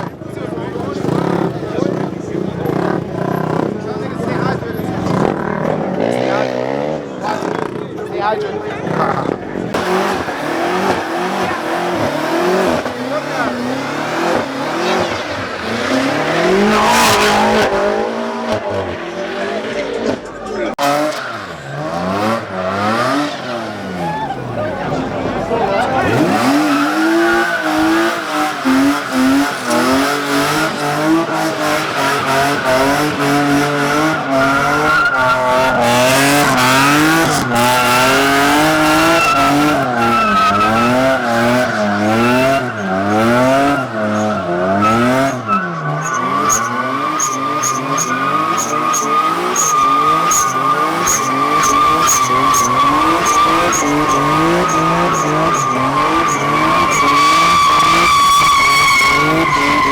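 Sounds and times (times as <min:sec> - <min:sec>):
car engine revving: 0:00.0 - 0:59.9
tyres squealing: 0:20.1 - 0:59.9.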